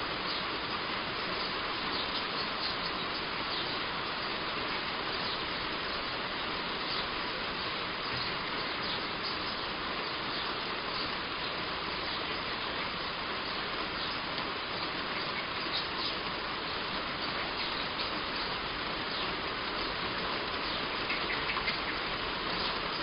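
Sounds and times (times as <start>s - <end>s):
birds chirping: 0.0s - 23.0s
heavy rain on a roof: 0.0s - 23.0s.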